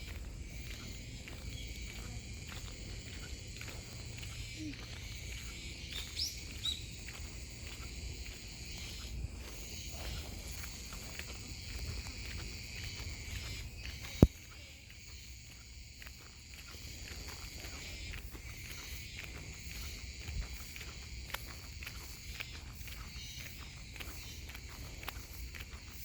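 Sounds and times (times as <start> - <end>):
cicadas singing: 0.0 - 26.0
footsteps on a path: 0.0 - 26.0.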